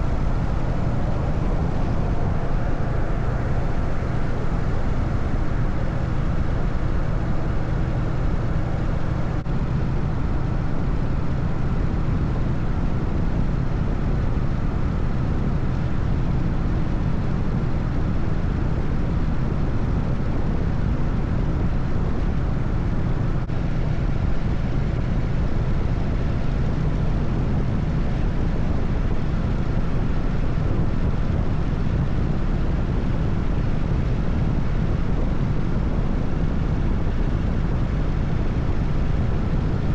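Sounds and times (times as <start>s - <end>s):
motorcycle engine running: 0.0s - 19.2s
wind and road noise: 0.0s - 39.9s.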